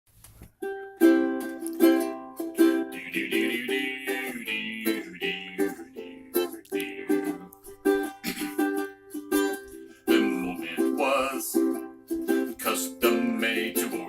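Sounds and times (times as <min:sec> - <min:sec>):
acoustic string instrument strumming: 0:00.4 - 0:14.0.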